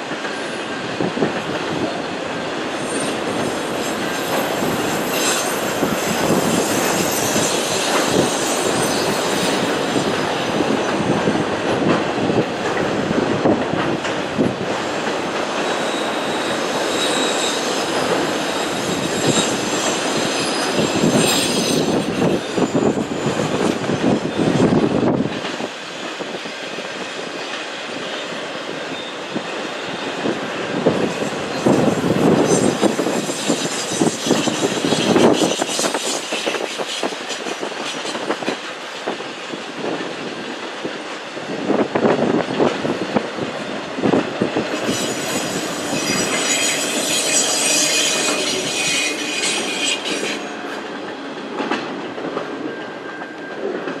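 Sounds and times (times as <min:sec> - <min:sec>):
freight train wheels clattering: 0:00.0 - 0:54.0
high-pitched wheel squeal: 0:02.8 - 0:10.4, 0:15.6 - 0:23.8, 0:31.6 - 0:37.0, 0:44.8 - 0:50.6.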